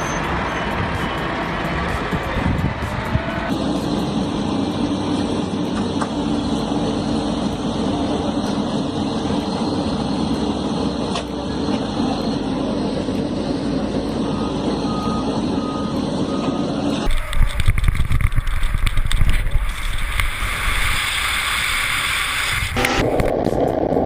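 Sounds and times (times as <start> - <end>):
reversing alarm beeping: 0.0 - 2.3, 13.8 - 17.1
engine running: 0.0 - 24.0.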